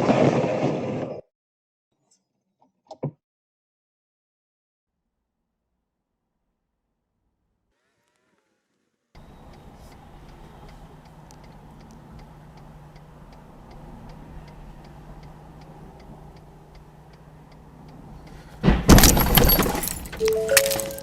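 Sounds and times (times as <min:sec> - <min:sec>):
steady ticking: 0:09.2 - 0:18.4
car interior hum: 0:09.2 - 0:21.0
rattling and breaking: 0:18.6 - 0:21.0.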